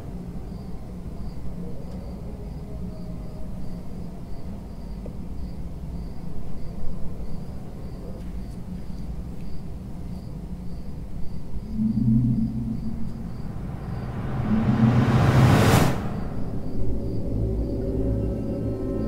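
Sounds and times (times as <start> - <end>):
cricket chirping: 0.3 - 19.0
low steady rumble: 11.6 - 19.0.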